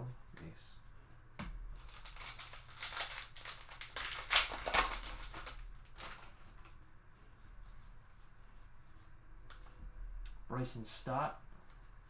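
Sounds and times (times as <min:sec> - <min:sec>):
foil wrapper crinkling: 0:01.7 - 0:06.8.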